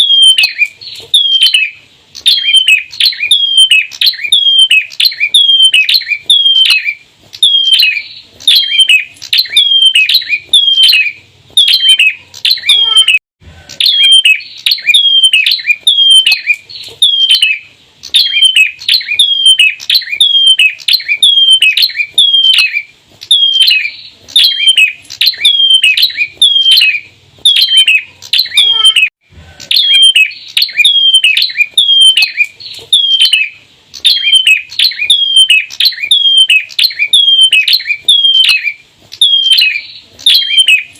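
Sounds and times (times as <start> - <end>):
bird chirping sharply: 0.0 - 13.2, 13.8 - 40.9.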